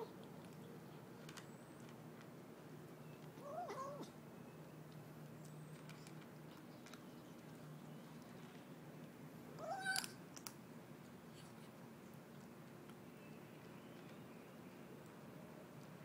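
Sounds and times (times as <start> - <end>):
kitten mewing: 9.6 - 10.2.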